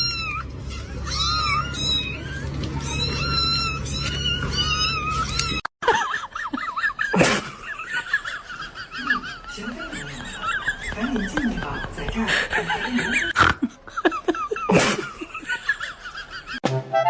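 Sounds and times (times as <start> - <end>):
cat meowing: 0.0 - 5.6
high-pitched animal calls: 0.0 - 5.6.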